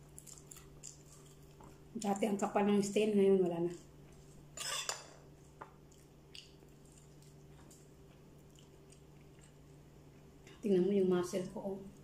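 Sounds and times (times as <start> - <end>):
chewing and mouth noise: 0.0 - 2.3, 5.4 - 10.4
steady low hum: 0.0 - 12.0.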